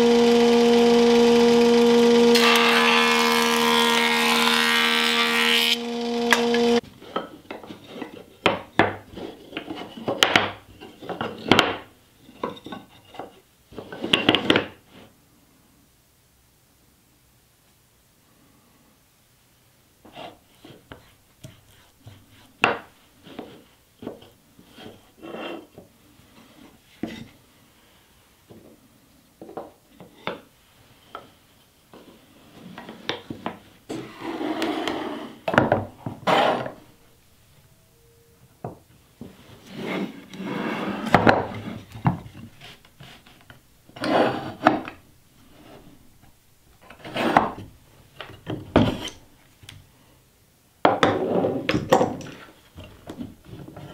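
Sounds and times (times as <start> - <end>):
wood rubbing and scraping: 2.4 - 15.1, 20.0 - 27.4, 39.2 - 46.2, 46.8 - 49.2, 51.1 - 53.9.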